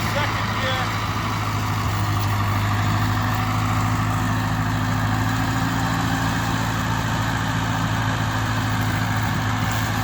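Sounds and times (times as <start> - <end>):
tractor engine running steadily: 0.0 - 10.0.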